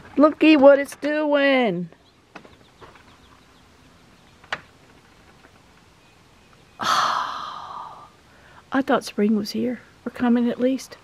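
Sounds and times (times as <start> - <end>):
faint bird chirps: 5.9 - 8.1
long breathy sigh: 6.8 - 8.6.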